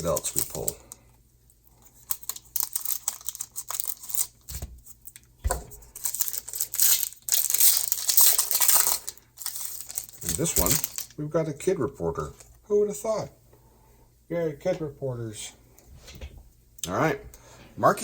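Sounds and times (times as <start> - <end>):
cards being handled: 0.0 - 0.8, 1.9 - 11.1
foil wrapper crinkling: 0.0 - 1.0, 1.7 - 11.2
dull thumps: 5.4 - 5.9.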